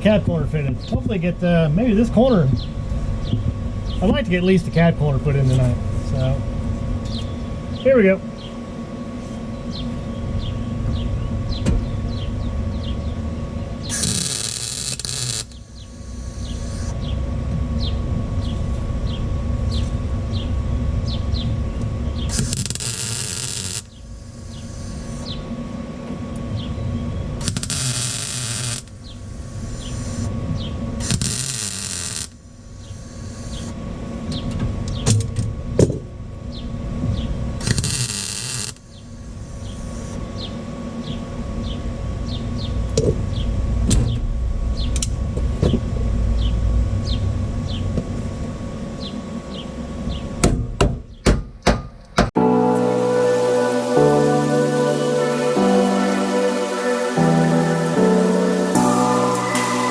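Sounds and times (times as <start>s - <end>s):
low running hum: 0.0s - 51.2s
welder crackling bursts: 13.8s - 16.8s, 22.3s - 25.2s, 27.4s - 30.3s, 31.0s - 33.7s, 37.6s - 38.9s.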